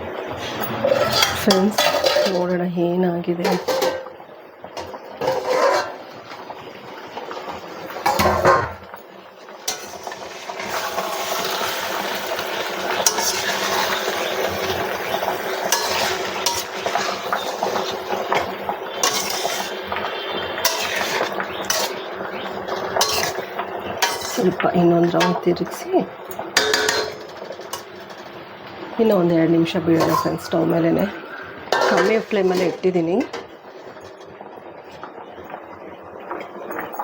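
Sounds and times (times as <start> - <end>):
ladle scraping and clinking in pot: 0.4 - 2.4, 3.4 - 4.1, 4.8 - 6.1, 8.1 - 8.8, 13.0 - 19.8, 20.6 - 22.0, 22.7 - 23.4, 24.0 - 24.6, 26.3 - 28.2, 30.0 - 30.5, 31.7 - 34.2
metal pot clattering: 0.4 - 2.6, 3.4 - 6.5, 7.9 - 9.0, 9.7 - 20.0, 20.6 - 28.4, 29.0 - 30.8, 31.7 - 34.4.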